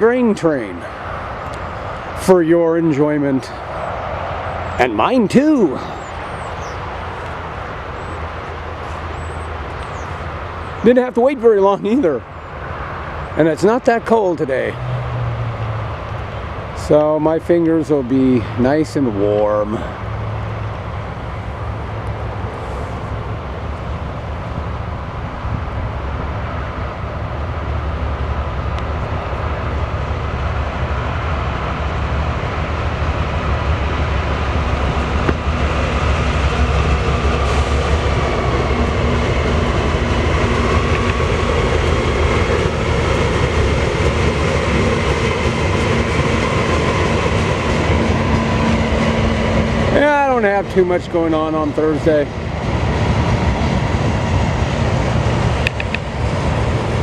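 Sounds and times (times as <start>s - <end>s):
diesel locomotives rumbling: 0.0s - 57.0s
train wheels on rails: 14.4s - 57.0s.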